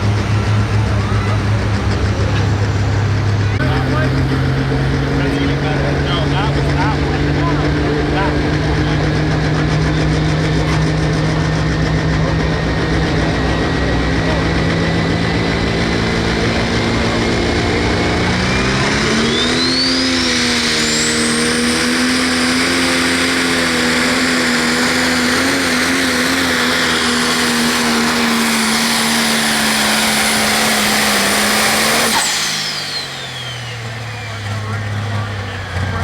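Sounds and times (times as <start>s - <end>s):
tractor diesel engine at full throttle: 0.0s - 36.0s
high turbo whistle: 17.7s - 22.8s, 26.5s - 34.8s.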